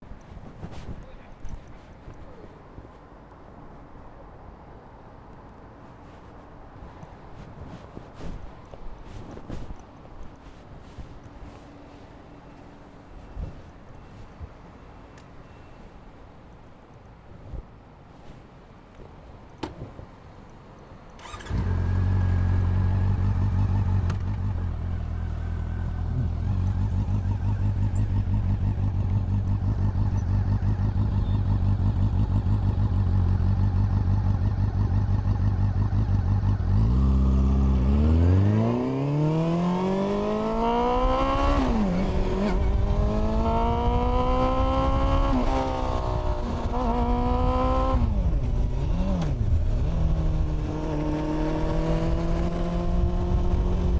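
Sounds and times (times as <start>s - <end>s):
motorcycle engine idling and revving: 21.2s - 53.9s.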